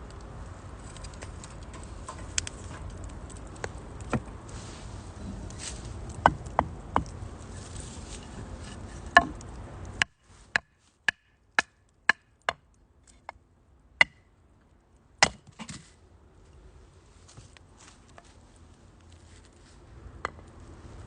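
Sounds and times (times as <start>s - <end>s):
firewood crackling and popping: 0.0s - 13.2s.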